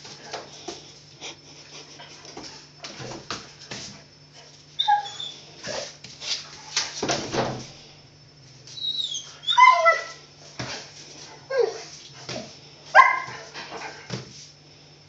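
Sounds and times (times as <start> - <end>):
scuffling noises: 0.0 - 7.2
dog whining and yipping: 4.8 - 5.4, 8.8 - 10.2.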